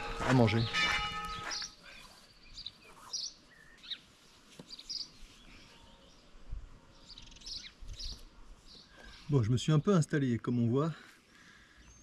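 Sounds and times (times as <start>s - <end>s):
high bird chirps: 0.0s - 4.0s.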